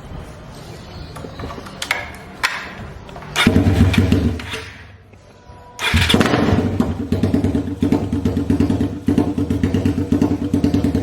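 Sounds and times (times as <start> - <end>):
motorcycle engine idling: 3.4 - 4.9, 5.8 - 11.0.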